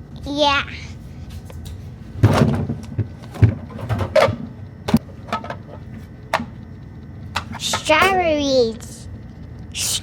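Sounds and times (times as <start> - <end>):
items scraping and knocking in fridge: 2.1 - 6.0.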